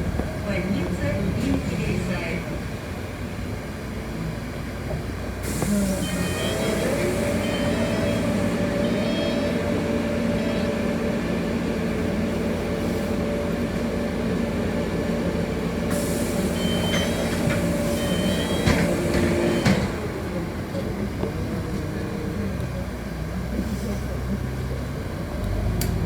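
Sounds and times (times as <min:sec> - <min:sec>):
bus engine humming: 0:00.0 - 0:26.0
air hiss: 0:05.4 - 0:08.4, 0:15.9 - 0:19.5.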